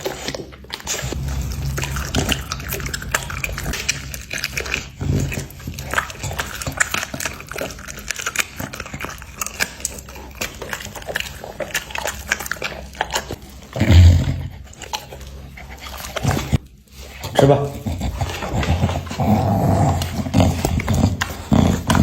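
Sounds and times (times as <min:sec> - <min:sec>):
dog chewing meat: 0:00.0 - 0:22.0
loud low thump: 0:01.0 - 0:06.1.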